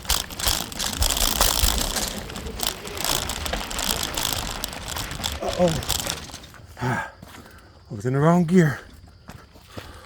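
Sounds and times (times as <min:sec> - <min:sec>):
bike rattling over bumps: 0:00.0 - 0:07.1
tyres crunching on dirt: 0:00.0 - 0:10.0.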